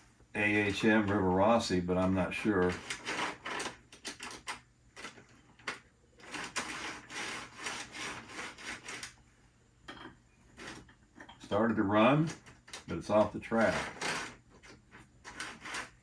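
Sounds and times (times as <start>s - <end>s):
model locomotive clicking and scraping: 11.5s - 16.0s.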